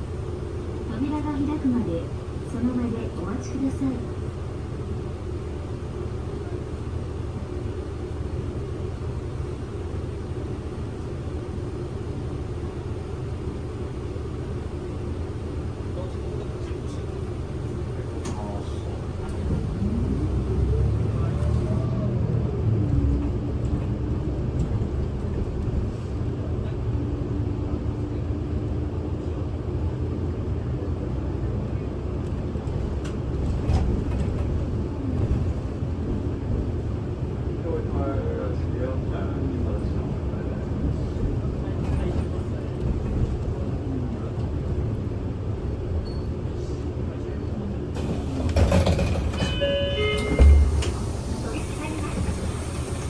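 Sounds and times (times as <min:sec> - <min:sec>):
bus engine and road rumble: 0:00.0 - 0:53.0
hiss: 0:50.8 - 0:53.0.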